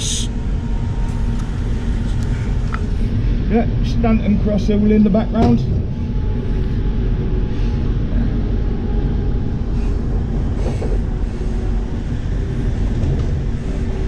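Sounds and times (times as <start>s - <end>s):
train low rumble: 0.0s - 14.0s.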